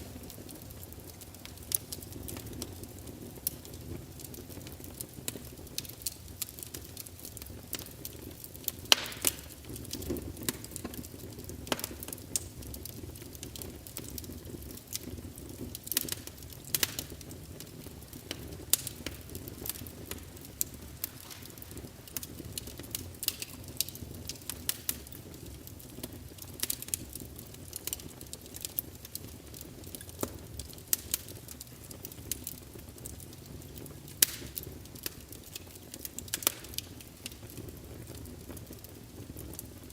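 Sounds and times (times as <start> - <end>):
burning logs popping and snapping: 0.0 - 39.9
low rumble of flames: 0.0 - 39.9.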